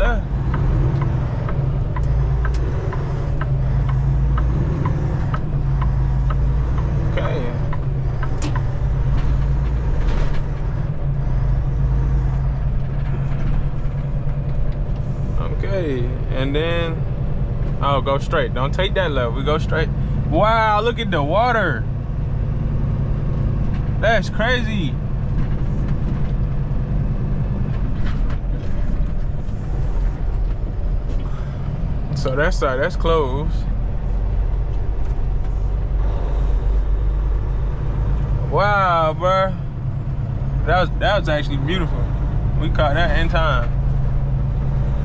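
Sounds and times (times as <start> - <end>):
diesel truck engine running: 0.0 - 45.0
tyre and road noise: 0.0 - 45.0.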